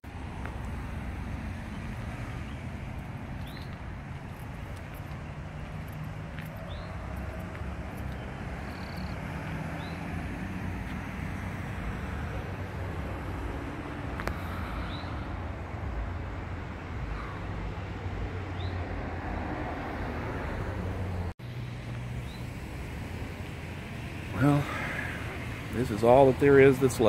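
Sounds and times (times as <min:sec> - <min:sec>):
bird chirping: 0:01.6 - 0:03.8, 0:04.9 - 0:10.2, 0:18.5 - 0:18.8, 0:22.2 - 0:22.6
low engine drone: 0:20.8 - 0:26.8.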